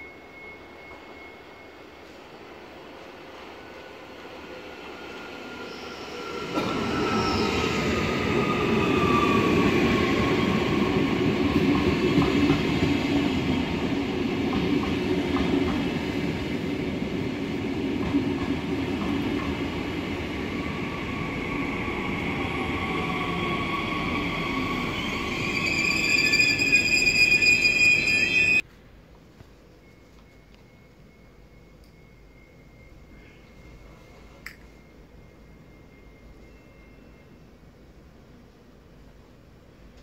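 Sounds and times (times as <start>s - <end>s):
train wheels rumbling on rails: 2.9s - 28.6s.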